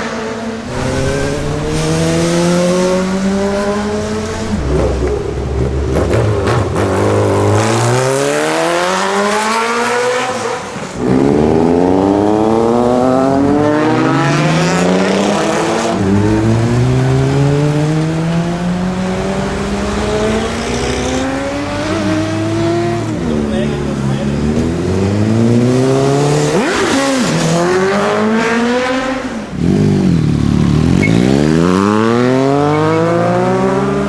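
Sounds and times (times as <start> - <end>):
motorcycle engine accelerating: 0.6 - 10.0, 11.0 - 34.0.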